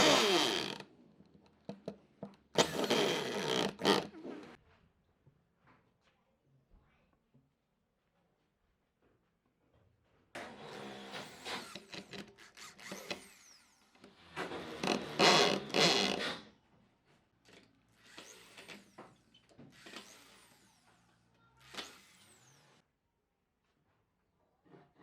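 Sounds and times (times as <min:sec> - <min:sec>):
woodworking tools scraping and whirring: 0:00.0 - 0:00.8, 0:02.6 - 0:04.6, 0:10.4 - 0:16.6, 0:17.5 - 0:22.8.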